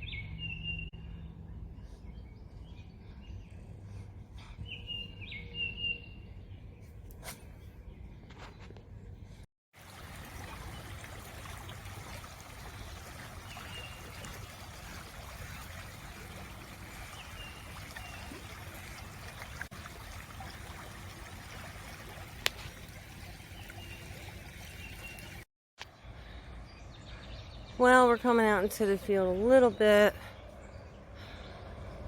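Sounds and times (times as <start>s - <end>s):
water trickling: 9.8s - 25.5s.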